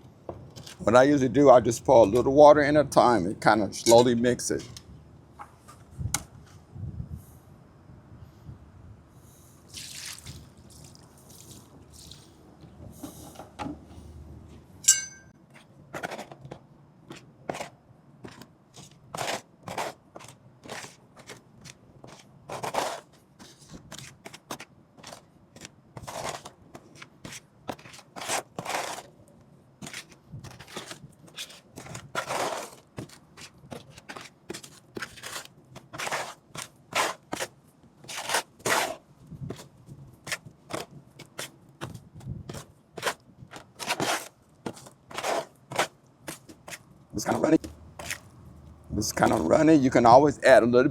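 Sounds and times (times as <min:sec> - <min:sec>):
sharp clink: 0:14.8 - 0:15.3.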